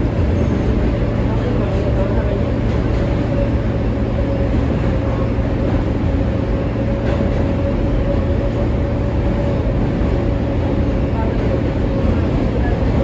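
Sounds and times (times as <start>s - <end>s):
subway car rumbling with whine: 0.0s - 13.0s.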